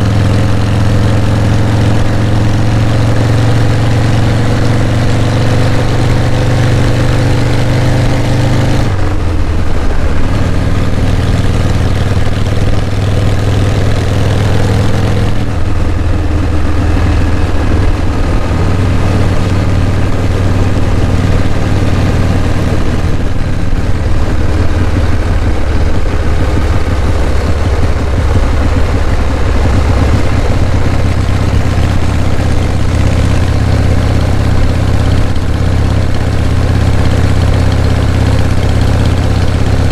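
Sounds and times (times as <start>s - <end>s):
motorcycle engine running: 0.0s - 39.9s
wind rush: 15.2s - 33.6s.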